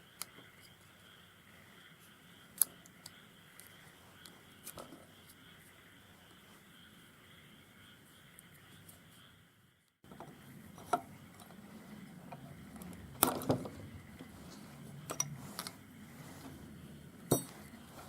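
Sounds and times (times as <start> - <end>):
metal parts clinking on work surface: 17.3 - 17.6.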